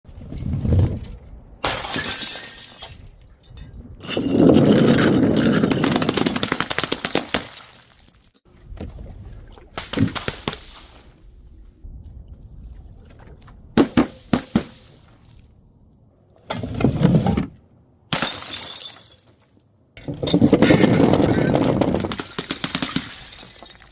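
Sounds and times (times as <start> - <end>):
glass bottles shattering: 1.6 - 8.4, 18.1 - 23.9.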